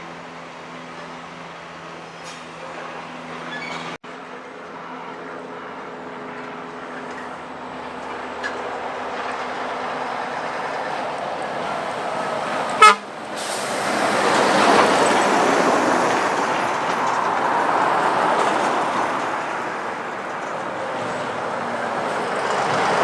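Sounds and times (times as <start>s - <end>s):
passing traffic: 0.0s - 23.0s
vehicle horn toot: 12.8s - 13.1s.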